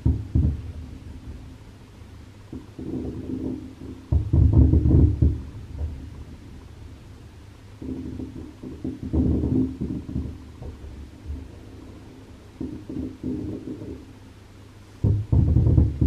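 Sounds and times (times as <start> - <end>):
firework shells booming: 0.0 - 1.7, 2.5 - 6.6, 7.8 - 11.8, 15.0 - 16.0.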